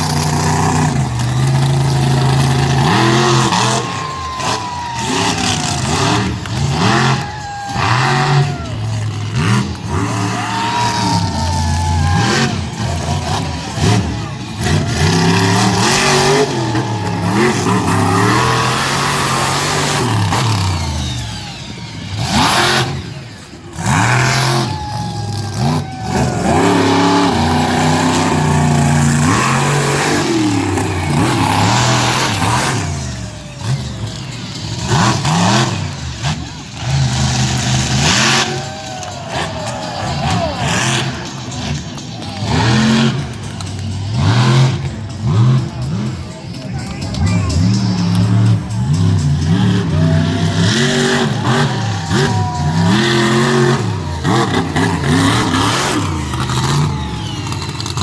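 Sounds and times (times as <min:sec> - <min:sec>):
monster truck engine revving: 0:00.0 - 0:58.0.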